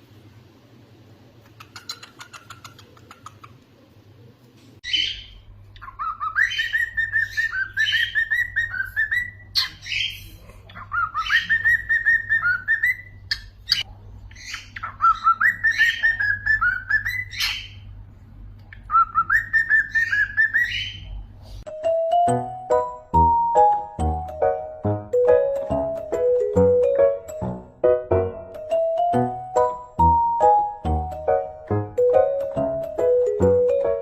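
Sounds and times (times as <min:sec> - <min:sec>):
bird chirps: 0:01.5 - 0:03.6, 0:04.8 - 0:17.9, 0:18.7 - 0:21.2
cockatiel whistling: 0:04.9 - 0:10.1, 0:10.9 - 0:13.8, 0:14.4 - 0:17.8, 0:18.9 - 0:21.1
chiming music: 0:21.7 - 0:34.0.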